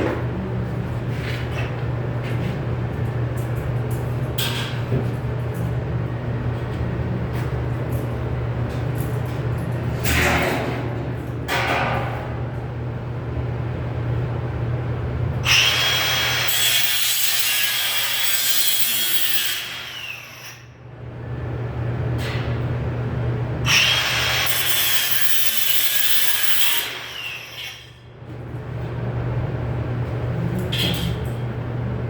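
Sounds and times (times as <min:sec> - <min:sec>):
steady low hum: 0:00.0 - 0:15.5, 0:20.7 - 0:23.7, 0:27.9 - 0:32.0.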